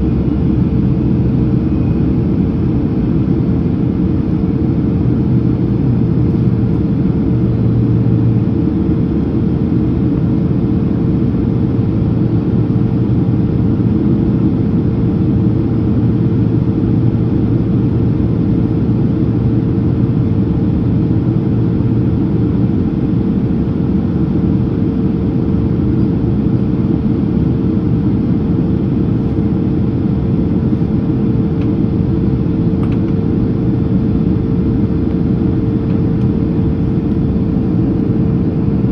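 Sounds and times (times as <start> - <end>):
airplane cabin engine rumble: 0.0 - 38.9
steady hum: 13.4 - 38.9.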